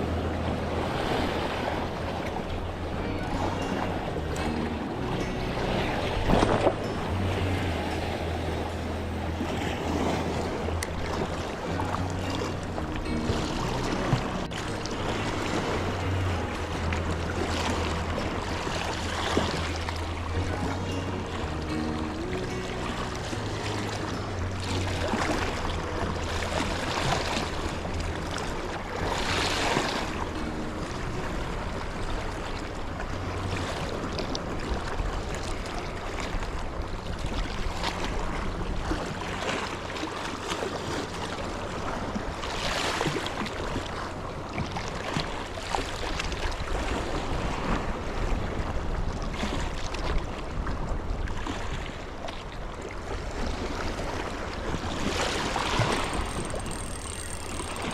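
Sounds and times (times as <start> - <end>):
sea waves washing against shore: 0.0 - 57.9
wind on microphone: 40.8 - 57.9.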